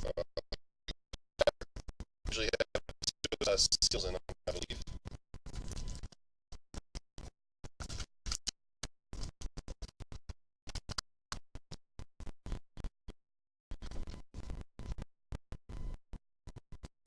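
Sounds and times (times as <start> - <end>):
choppy snippets of sound: 0.0 - 4.8.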